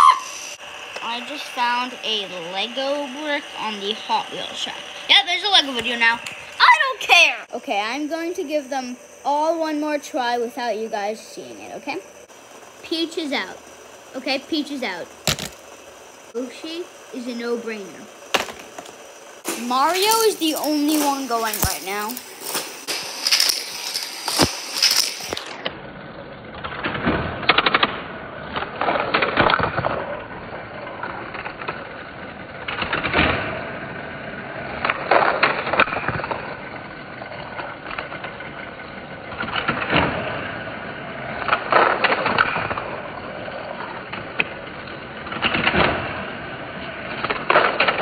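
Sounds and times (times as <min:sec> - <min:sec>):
toy karts clattering on track: 0:01.0 - 0:25.7
handling noise: 0:15.2 - 0:16.2.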